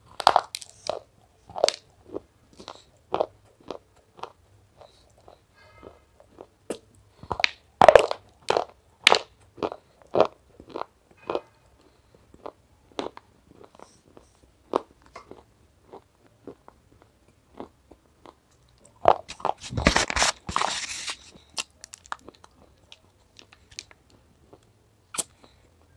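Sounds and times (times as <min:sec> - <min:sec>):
crunchy food being chewed: 0:00.0 - 0:05.5, 0:06.2 - 0:25.7.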